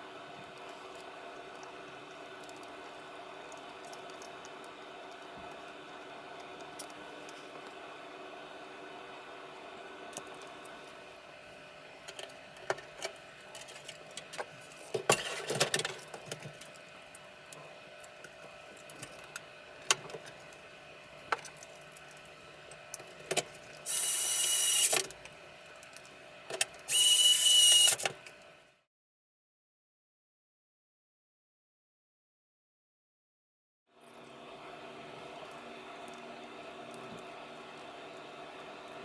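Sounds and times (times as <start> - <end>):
hissing bursts with whistling tone: 23.9 - 24.9, 26.9 - 28.0
held tones: 26.9 - 28.0.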